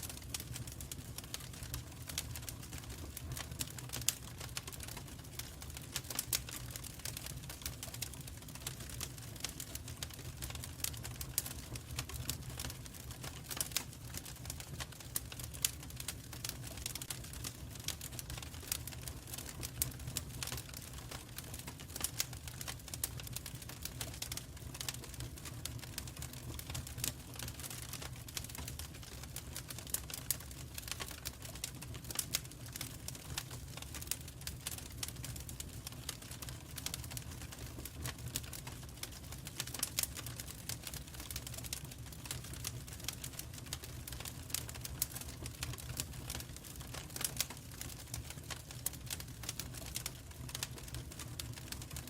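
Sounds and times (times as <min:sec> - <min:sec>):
low rumble of flames: 0:00.0 - 0:52.0
wood fire crackling: 0:00.0 - 0:52.0.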